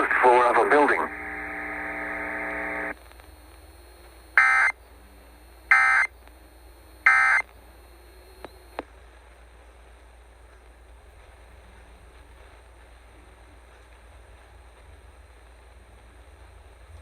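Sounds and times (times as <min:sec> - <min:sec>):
harsh data bursts: 0:00.0 - 0:03.0, 0:04.3 - 0:04.8, 0:05.7 - 0:06.1
buzzy radio tone: 0:00.0 - 0:08.8.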